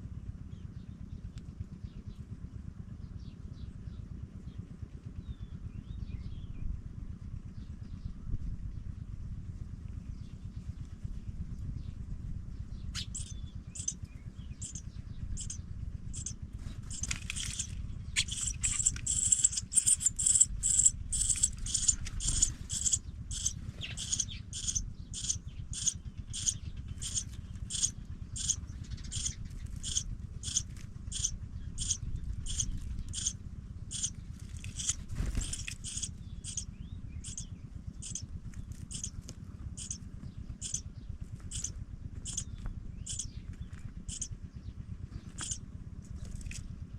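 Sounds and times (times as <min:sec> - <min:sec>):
low rumble: 0:08.2 - 0:39.2
nestlings cheeping: 0:13.0 - 0:14.0, 0:14.6 - 0:39.2, 0:39.8 - 0:40.0, 0:40.6 - 0:40.8, 0:41.4 - 0:42.5, 0:43.1 - 0:43.3, 0:44.1 - 0:44.3, 0:45.3 - 0:45.6.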